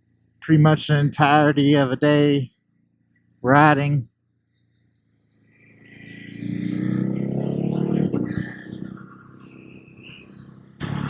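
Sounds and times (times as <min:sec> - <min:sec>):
motorcycle engine pulling away: 0:04.9 - 0:11.0.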